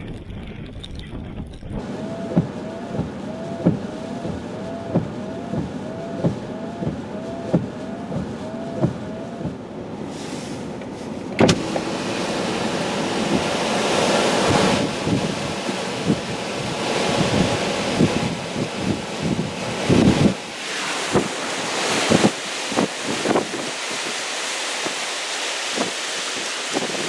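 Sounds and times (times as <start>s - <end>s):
knocks and thumps: 0.0s - 9.6s
wind gusting on microphone: 11.3s - 27.0s.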